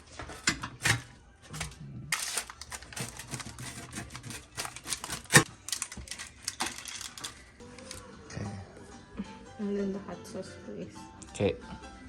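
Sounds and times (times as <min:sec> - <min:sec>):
tableware clicks and rustles: 0:00.0 - 0:08.0.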